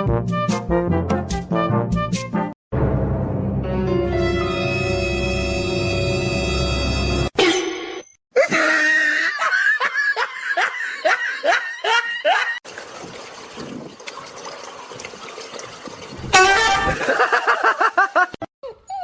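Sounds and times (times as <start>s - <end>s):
person laughing: 8.4s - 12.6s, 16.9s - 18.8s.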